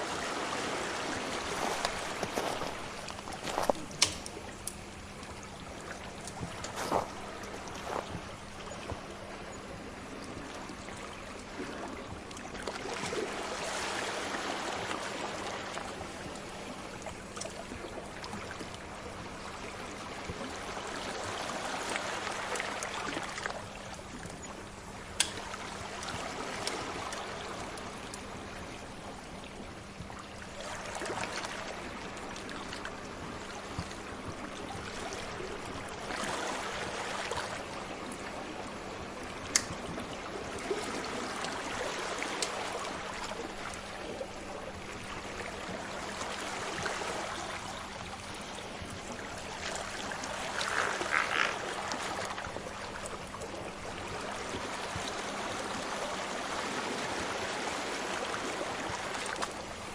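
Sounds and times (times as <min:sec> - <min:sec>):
sea waves washing ashore: 0:00.0 - 0:59.9
wood fire crackling and popping: 0:04.0 - 0:04.8.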